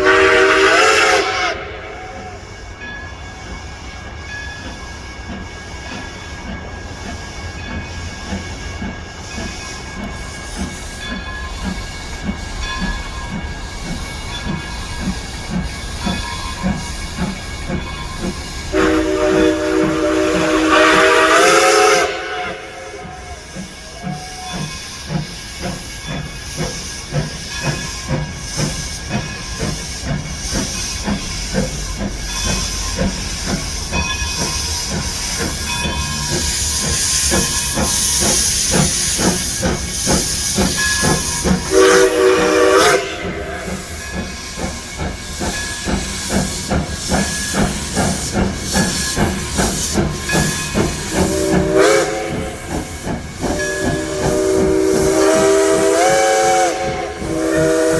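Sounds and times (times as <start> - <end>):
steam whistle blasts: 0.0 - 2.5, 18.7 - 25.2, 36.3 - 44.7, 50.3 - 57.9
steam hissing: 0.0 - 57.9
steam locomotive chuffing: 0.0 - 57.9.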